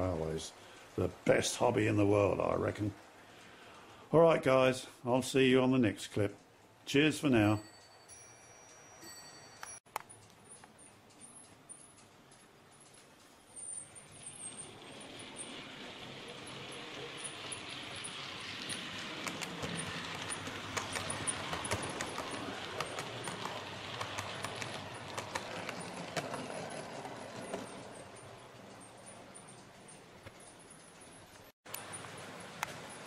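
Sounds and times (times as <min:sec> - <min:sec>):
model train rattling past: 0:00.0 - 0:03.2, 0:13.7 - 0:33.0
wheels clicking over rail joints: 0:00.0 - 0:04.7, 0:07.4 - 0:33.0.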